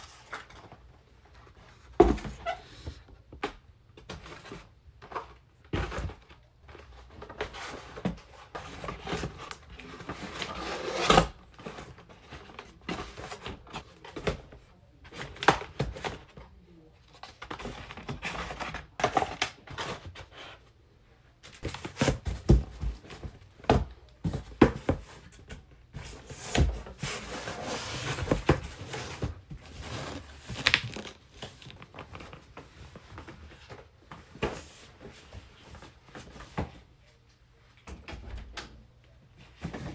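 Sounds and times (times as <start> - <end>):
toy packaging knocks and rustles: 21.6 - 34.8.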